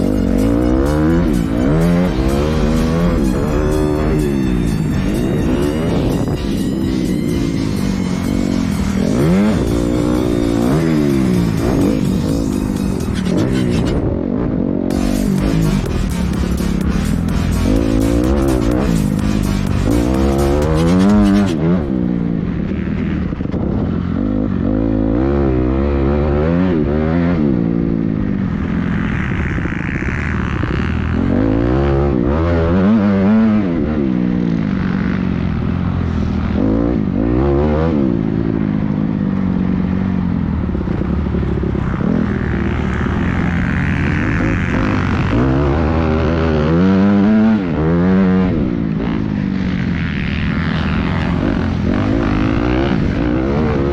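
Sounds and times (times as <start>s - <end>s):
motocross bike engine revving: 0.0s - 27.8s, 40.8s - 53.9s.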